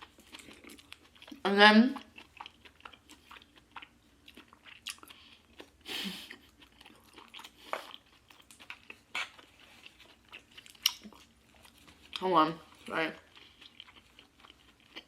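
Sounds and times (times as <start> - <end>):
chewing food: 0.0 - 15.0.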